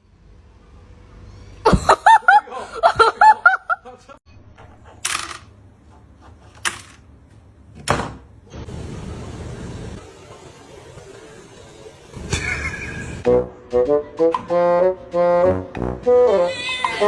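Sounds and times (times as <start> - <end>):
breathy noisy bursts: 8.6 - 13.2
high-pitched laughter: 12.2 - 13.3.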